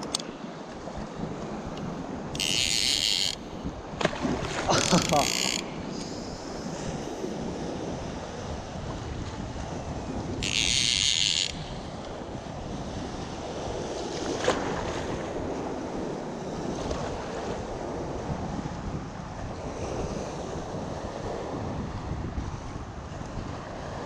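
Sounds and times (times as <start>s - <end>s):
wind buffeting microphone: 0.0s - 24.0s
rushing water: 4.0s - 6.5s.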